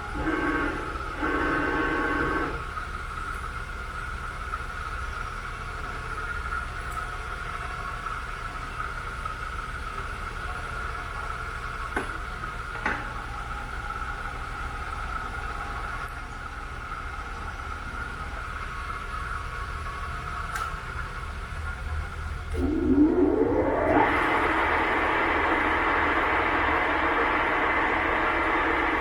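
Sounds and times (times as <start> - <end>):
milling machine whining: 0.0 - 3.1, 22.3 - 29.0.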